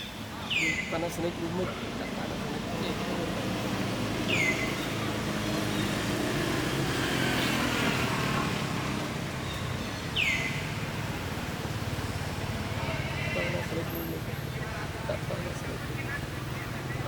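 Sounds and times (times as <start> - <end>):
high falling chirping calls: 0.0 - 1.0, 4.1 - 6.5, 9.4 - 10.8.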